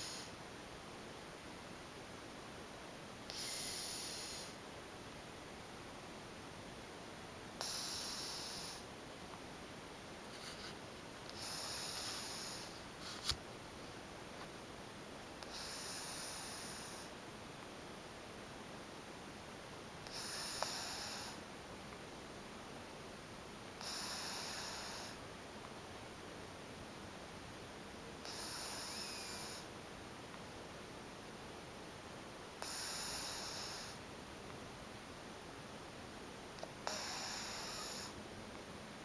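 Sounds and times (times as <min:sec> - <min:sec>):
cat snoring: 0:00.0 - 0:00.4, 0:03.3 - 0:04.6, 0:07.6 - 0:08.9, 0:11.3 - 0:13.3, 0:15.4 - 0:17.2, 0:20.0 - 0:21.5, 0:23.8 - 0:25.2, 0:28.2 - 0:29.7, 0:32.6 - 0:34.0, 0:36.6 - 0:38.2.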